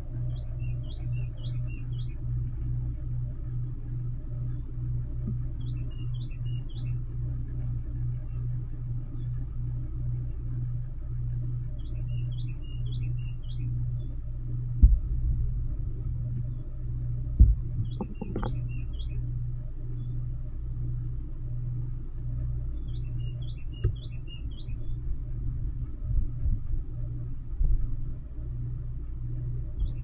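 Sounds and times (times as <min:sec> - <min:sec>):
steady low hum: 0:00.0 - 0:30.0
bird singing whistled notes: 0:05.6 - 0:07.0, 0:11.8 - 0:13.7, 0:22.8 - 0:24.9
dull thumps: 0:14.8 - 0:16.5, 0:17.3 - 0:18.8.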